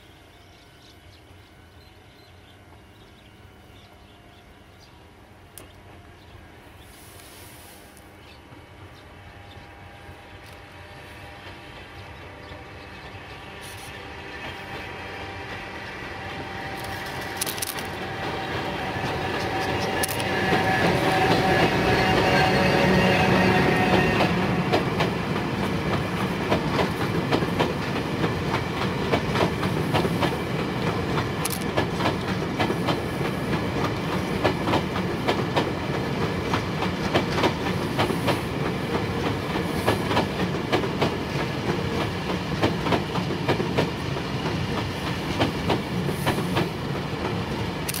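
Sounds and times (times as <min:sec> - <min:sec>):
train rumble: 0:00.0 - 0:48.0
train wheels clickety-clack: 0:10.2 - 0:48.0.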